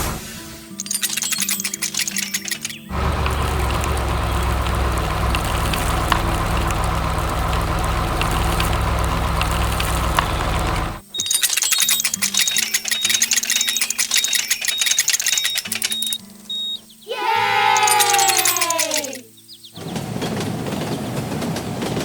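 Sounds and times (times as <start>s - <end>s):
excavator engine running: 0.0s - 16.8s, 17.8s - 19.2s
electronic music with beeps: 0.8s - 2.9s, 11.0s - 16.9s.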